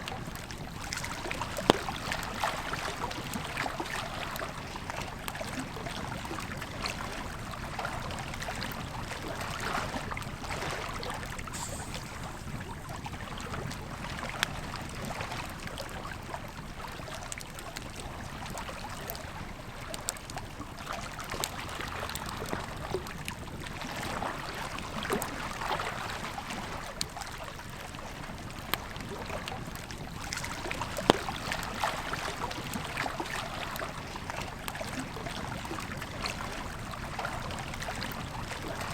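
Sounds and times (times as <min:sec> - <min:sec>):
campfire crackling and popping: 0:11.2 - 0:14.8, 0:29.6 - 0:33.8.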